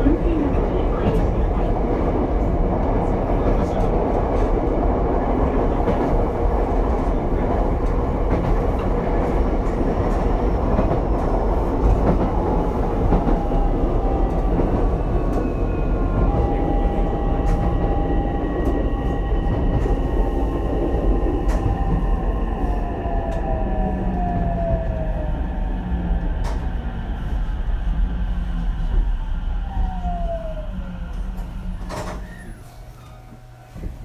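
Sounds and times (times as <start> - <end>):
train wheels rumbling on rail: 0.0 - 34.0
rail joint clicks: 2.8 - 24.9, 26.2 - 26.8, 31.0 - 34.0.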